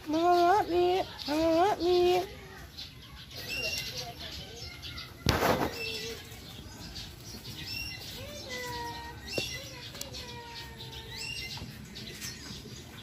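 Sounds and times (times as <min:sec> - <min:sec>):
loud rustling burst: 0:05.2 - 0:06.1.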